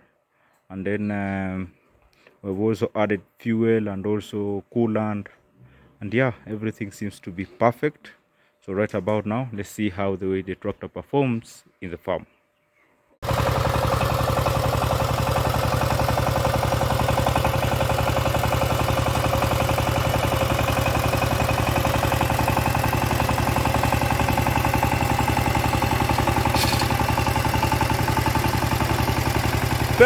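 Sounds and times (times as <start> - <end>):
walking tractor engine running: 13.2 - 30.0.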